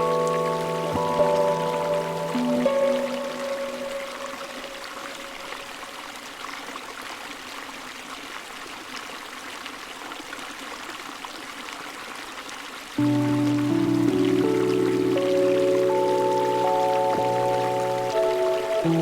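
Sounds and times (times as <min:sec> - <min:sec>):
background music: 0:00.0 - 0:05.4, 0:13.0 - 0:19.0
running water: 0:00.0 - 0:19.0.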